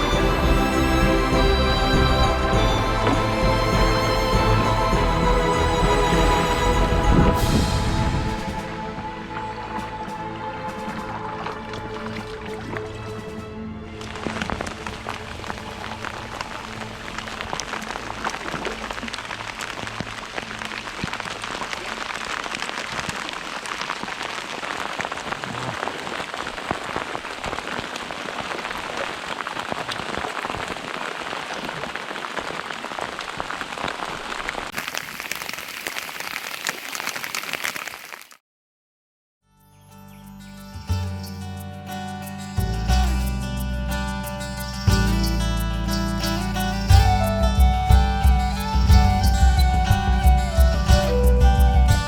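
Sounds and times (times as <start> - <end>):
rain falling on a surface: 10.8 - 38.4.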